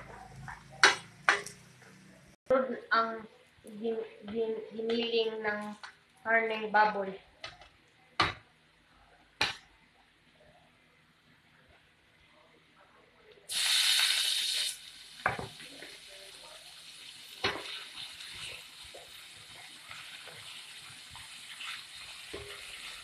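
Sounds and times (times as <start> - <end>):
meat sizzling in hot oil: 13.5 - 23.0.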